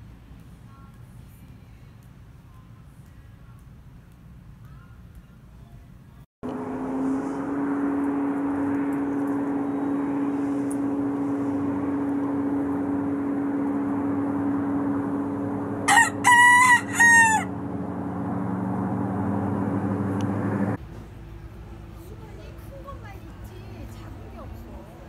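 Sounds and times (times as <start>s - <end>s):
mechanical drone: 6.4s - 20.8s
rooster crowing: 15.8s - 17.7s.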